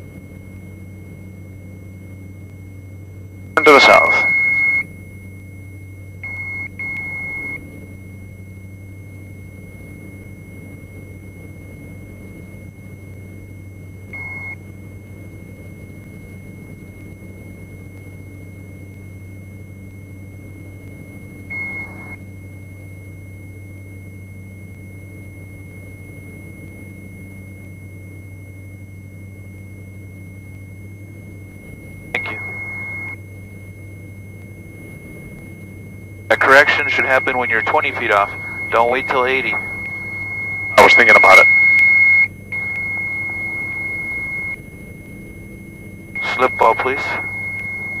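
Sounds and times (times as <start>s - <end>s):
aircraft engines droning: 0.0s - 48.0s
stall warning beeps: 3.6s - 4.9s, 6.2s - 7.6s, 14.2s - 14.6s, 21.5s - 22.2s, 32.1s - 33.2s, 36.0s - 48.0s.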